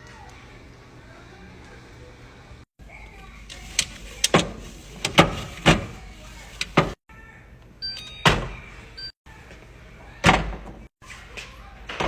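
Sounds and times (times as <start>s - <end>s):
items knocking in a fridge: 3.6s - 7.0s, 10.2s - 10.9s.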